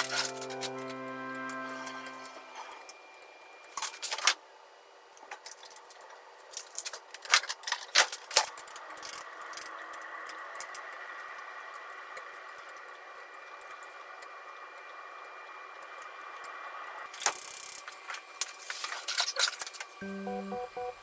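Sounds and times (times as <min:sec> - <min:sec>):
faint steady hum: 0:00.0 - 0:06.5, 0:20.0 - 0:21.0.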